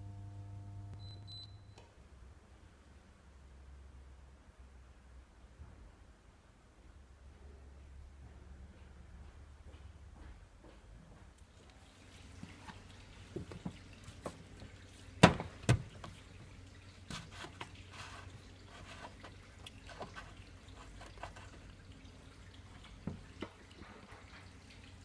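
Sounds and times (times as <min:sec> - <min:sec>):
water dripping: 0:11.4 - 0:25.0.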